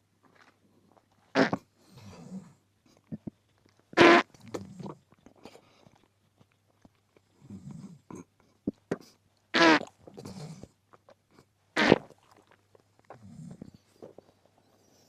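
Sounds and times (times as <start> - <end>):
wet chewing and biting: 9.8 - 13.4.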